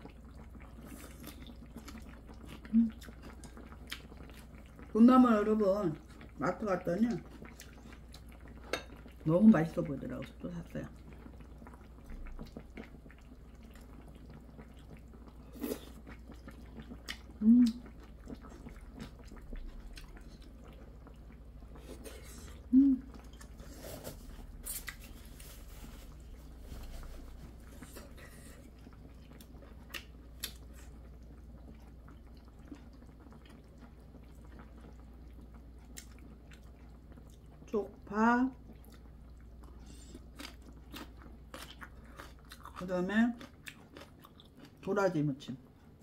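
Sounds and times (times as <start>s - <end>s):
chewing and smacking: 0.0s - 4.9s, 7.2s - 9.2s, 11.2s - 23.7s, 26.8s - 37.7s, 38.6s - 44.9s.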